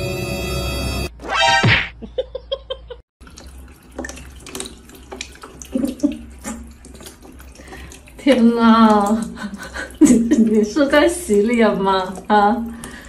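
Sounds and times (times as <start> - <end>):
water running from tap: 3.2 - 13.0
water splashing into plastic basin: 3.2 - 13.0.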